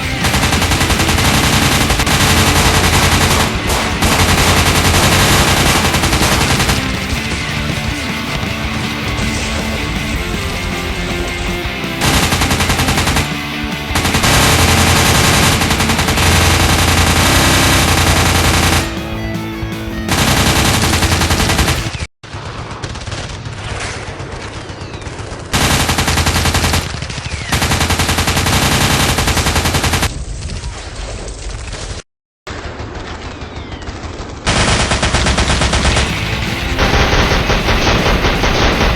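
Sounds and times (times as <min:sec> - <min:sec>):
machine-gun fire: 0:00.0 - 0:19.4, 0:20.0 - 0:30.2, 0:32.5 - 0:38.9
rock music: 0:00.0 - 0:22.0, 0:35.5 - 0:38.9.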